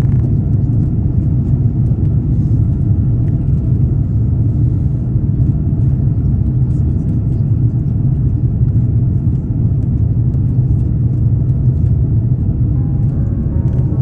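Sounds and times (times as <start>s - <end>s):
airliner cabin rumble: 0.0s - 14.0s.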